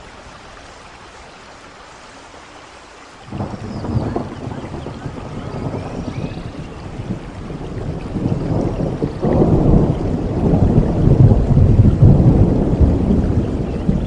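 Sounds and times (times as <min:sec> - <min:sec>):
steady rain: 0:00.0 - 0:14.0
thunder rumbling: 0:03.3 - 0:14.0.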